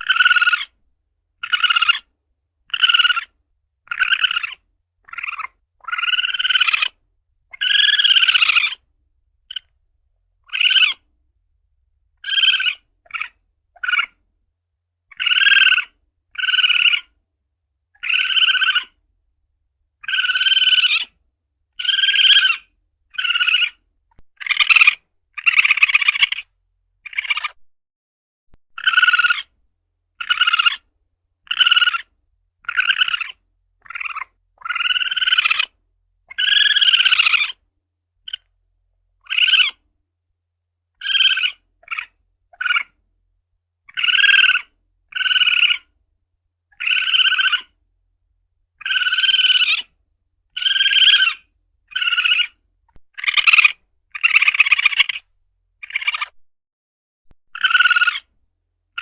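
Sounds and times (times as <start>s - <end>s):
civet calling: 0.0s - 0.8s, 1.4s - 2.1s, 2.7s - 8.8s, 9.5s - 9.7s, 10.4s - 11.1s, 12.2s - 14.2s, 15.1s - 17.2s, 18.0s - 19.0s, 20.0s - 21.2s, 21.8s - 23.8s, 24.4s - 27.6s, 28.8s - 37.6s, 38.2s - 38.5s, 39.2s - 39.8s, 41.0s - 43.0s, 43.9s - 46.0s, 46.7s - 47.8s, 48.8s - 56.4s, 57.5s - 58.3s.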